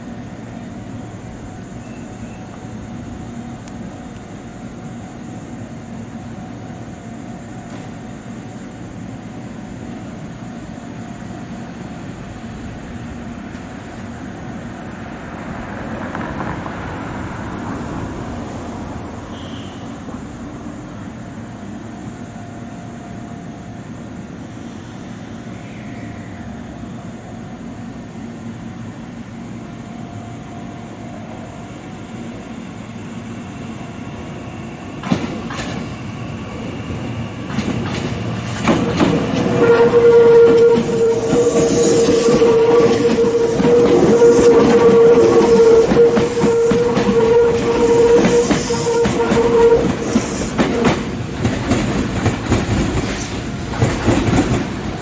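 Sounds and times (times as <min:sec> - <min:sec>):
steady whine: 0:00.0 - 0:55.0
electric train running: 0:19.9 - 0:55.0.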